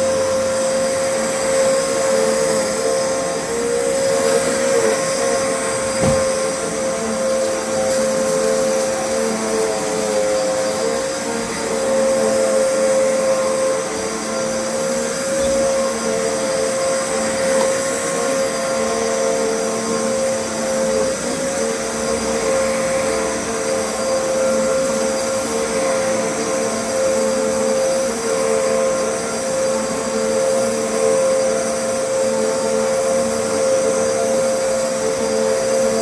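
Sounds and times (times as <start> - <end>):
vacuum cleaner running: 0.0 - 36.0.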